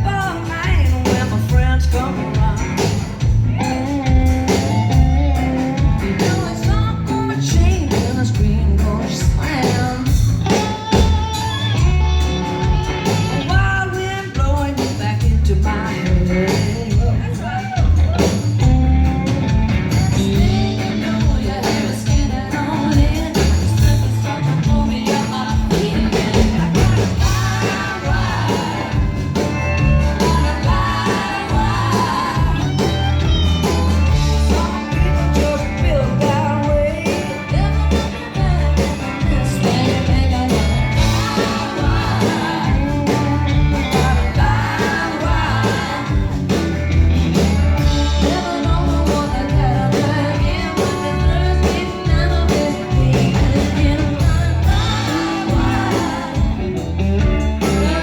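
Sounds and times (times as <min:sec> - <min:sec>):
bass line: 0:00.0 - 0:58.0
live rock band playing: 0:00.0 - 0:58.0
steady drum beat: 0:00.0 - 0:58.0
person singing: 0:20.1 - 0:46.7, 0:47.4 - 0:58.0.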